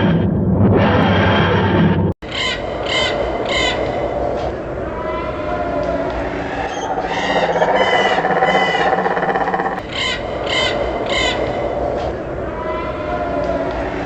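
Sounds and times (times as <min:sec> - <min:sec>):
harsh bird calls: 0:06.3 - 0:11.8.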